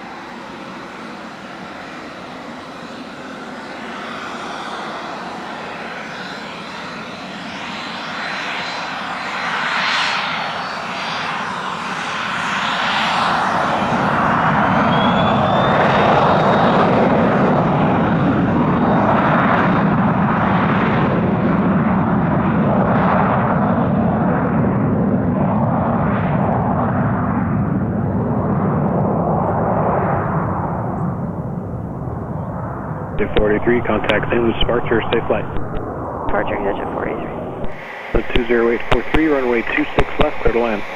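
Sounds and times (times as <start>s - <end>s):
high jet engine whine: 0.0s - 40.9s
jet engines roaring: 32.7s - 40.9s.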